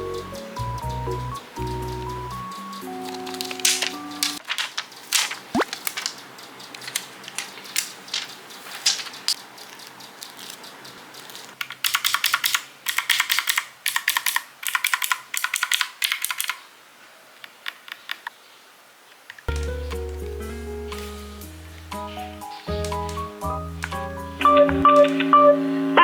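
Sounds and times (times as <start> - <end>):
typing on computer keyboard: 1.6 - 16.6, 22.7 - 25.2.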